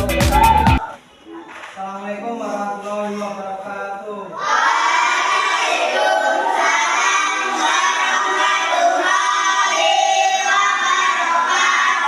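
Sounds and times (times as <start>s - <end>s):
children chanting in unison: 4.4s - 12.0s.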